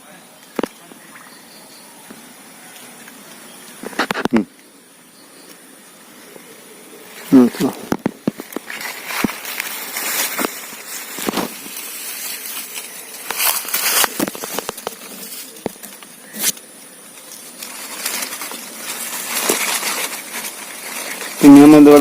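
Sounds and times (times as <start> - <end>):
plastic bottle handling noise: 7.3 - 22.0.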